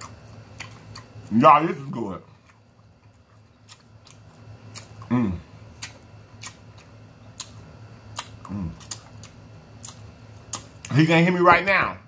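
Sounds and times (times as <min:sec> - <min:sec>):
lip-smacking and chewing clicks: 0:05.8 - 0:10.9.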